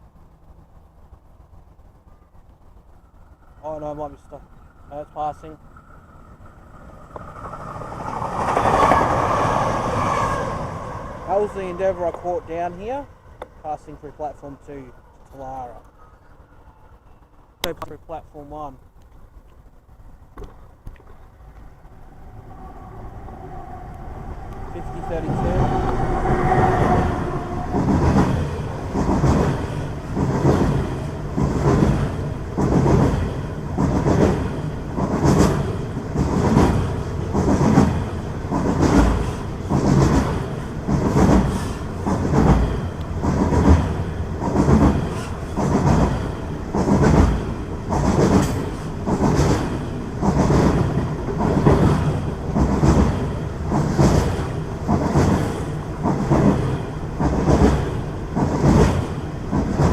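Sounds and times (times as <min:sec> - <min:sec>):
train wheels clacking on rails: 0:24.5 - 0:59.9.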